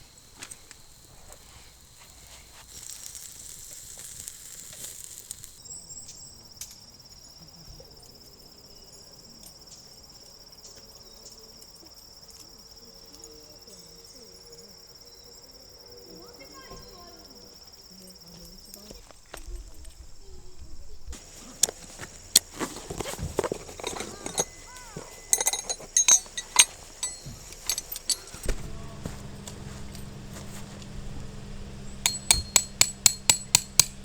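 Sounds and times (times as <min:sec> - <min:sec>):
insect trilling: 0:00.0 - 0:06.6.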